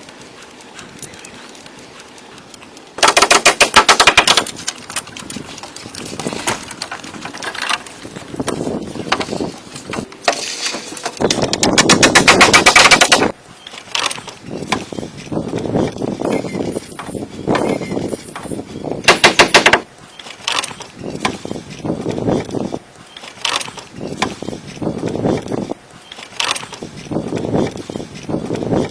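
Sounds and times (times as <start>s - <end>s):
knocks and scraping on wood: 3.0s - 28.9s.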